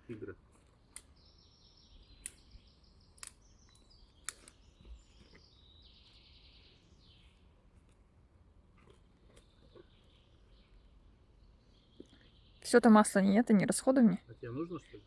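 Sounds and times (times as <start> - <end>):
sharp clicks: 2.2 - 4.6.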